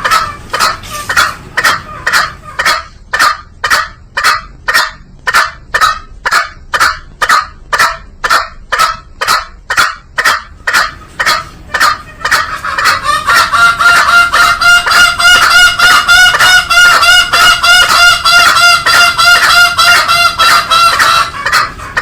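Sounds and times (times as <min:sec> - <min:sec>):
junglefowl calling: 0:00.0 - 0:22.0.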